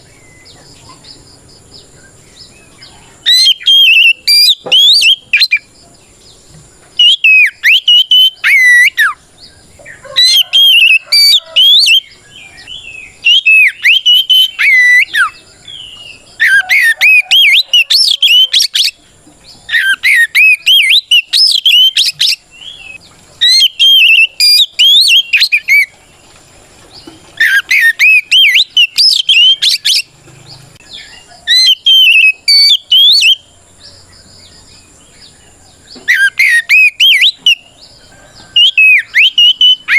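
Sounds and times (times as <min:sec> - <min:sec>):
bird singing whistled phrases: 0:03.2 - 0:05.7, 0:07.0 - 0:09.2, 0:10.2 - 0:19.0, 0:19.7 - 0:25.9, 0:27.4 - 0:30.1, 0:30.9 - 0:33.5, 0:36.0 - 0:37.7, 0:38.4 - 0:39.9.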